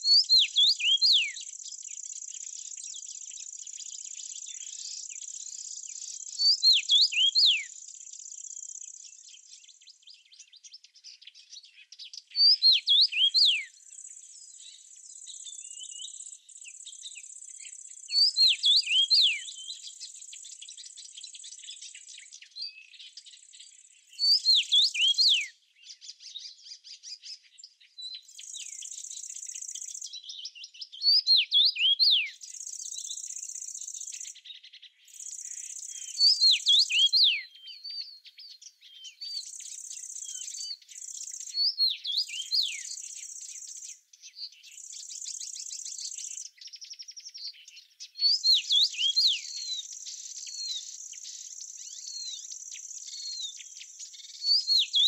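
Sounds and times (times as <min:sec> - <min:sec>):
songbird whistling phrase: 0:00.0 - 0:02.0, 0:06.4 - 0:07.8, 0:12.4 - 0:14.1, 0:17.6 - 0:20.0, 0:24.1 - 0:25.6, 0:30.9 - 0:34.5, 0:35.1 - 0:43.8, 0:44.4 - 0:53.8, 0:54.4 - 0:55.0.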